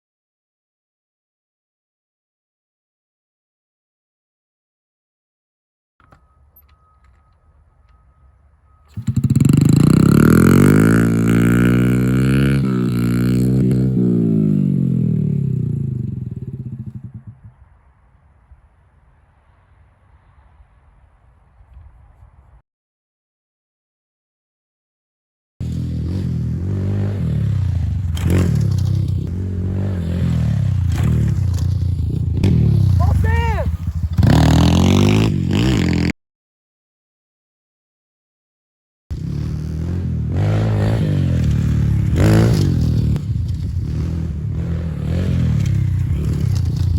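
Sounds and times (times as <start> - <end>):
dirt bike engine revving: 8.9 - 17.4, 25.6 - 36.1, 39.1 - 46.9.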